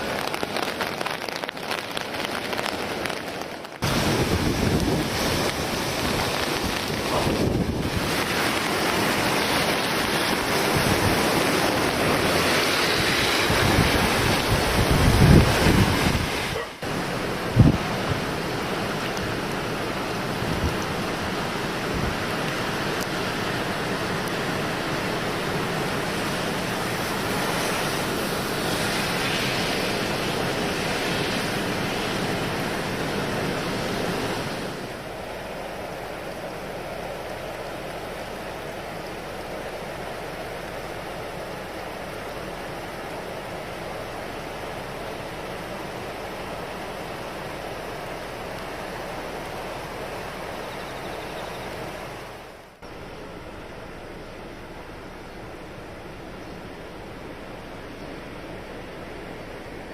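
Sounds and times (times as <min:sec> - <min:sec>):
rushing water: 0:00.0 - 0:59.9
wind buffeting microphone: 0:03.8 - 0:16.7, 0:17.4 - 0:18.5.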